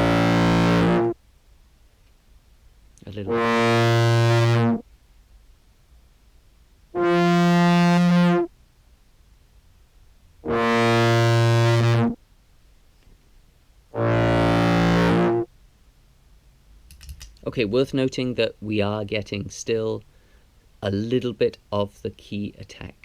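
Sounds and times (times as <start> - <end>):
distorted contrabass clarinet notes: 0.0 - 1.2, 3.1 - 4.8, 7.0 - 8.5, 10.4 - 12.2, 14.0 - 15.5.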